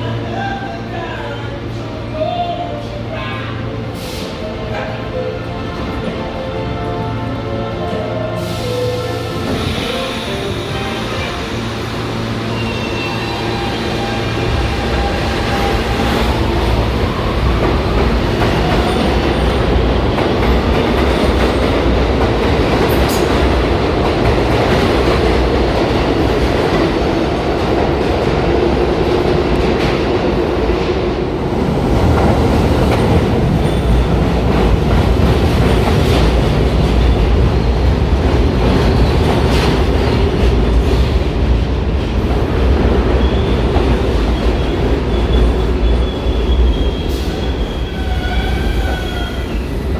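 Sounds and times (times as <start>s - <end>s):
low train rumble: 0.0s - 49.9s
train wheels clattering over rails: 13.8s - 49.9s.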